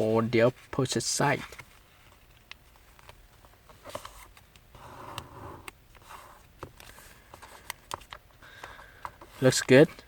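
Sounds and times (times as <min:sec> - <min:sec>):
paper rustling and creasing: 0:00.0 - 0:05.1.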